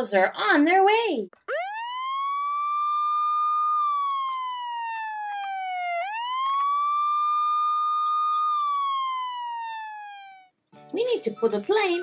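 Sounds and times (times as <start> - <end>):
siren wailing: 1.4 - 10.6.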